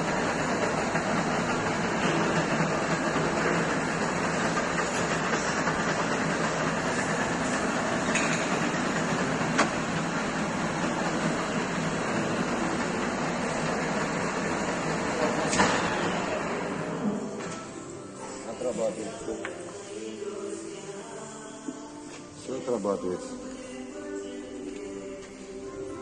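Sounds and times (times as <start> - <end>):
lathe mechanical rattle: 0.0 - 19.6.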